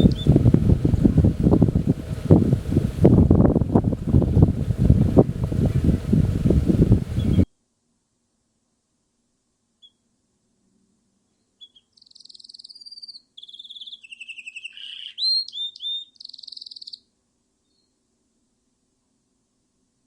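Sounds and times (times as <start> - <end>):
songbird singing trills: 0.0 - 1.9, 7.1 - 7.5, 9.8 - 10.0, 11.3 - 18.0.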